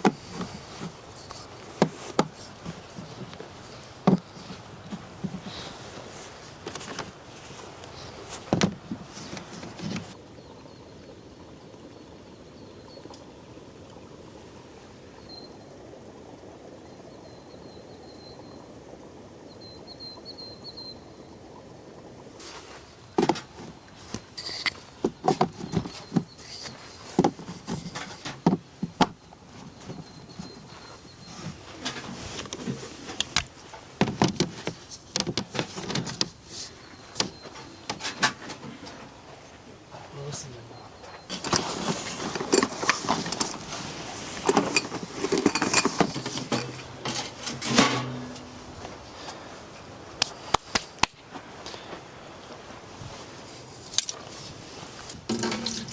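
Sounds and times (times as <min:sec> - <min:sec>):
knocks and clatter of handling: 0:00.0 - 0:05.8, 0:08.3 - 0:10.2, 0:23.2 - 0:36.4, 0:41.2 - 0:49.0, 0:55.0 - 0:55.9
bird chirping faintly: 0:29.2 - 0:31.9, 0:36.7 - 0:38.0
rain hissing: 0:51.4 - 0:55.9.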